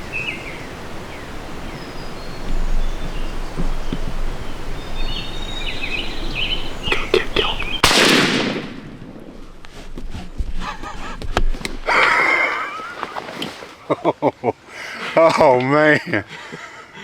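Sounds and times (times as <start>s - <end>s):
birds calling faintly: 0.0s - 8.1s, 9.2s - 14.1s
outdoor ambience: 0.0s - 17.0s
loud shotgun blast: 7.8s - 9.4s.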